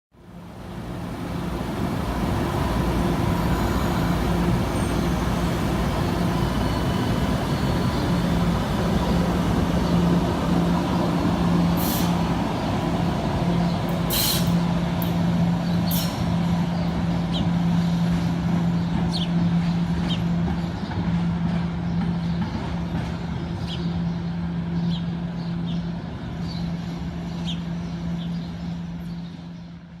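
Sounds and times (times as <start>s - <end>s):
light-rail train electric hum: 0.2s - 30.0s.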